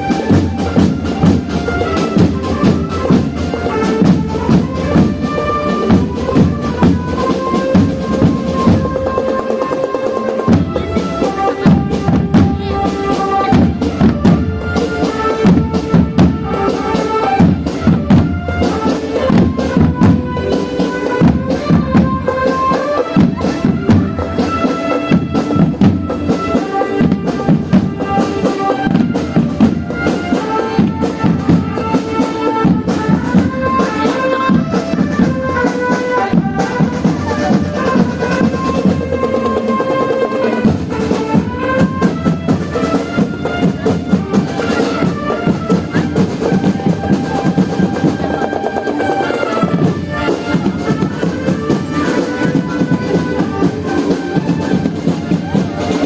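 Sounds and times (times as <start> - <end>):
marching band drumming: 0.0 - 56.0
wind instruments melody: 0.0 - 56.0.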